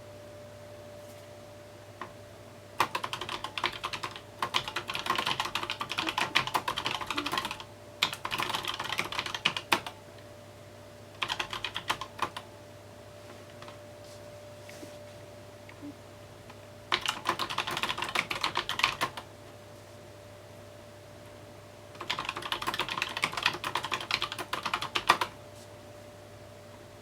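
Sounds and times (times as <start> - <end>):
mechanical keyboard typing: 2.8 - 10.0, 11.2 - 12.5, 16.9 - 19.3, 22.0 - 25.4.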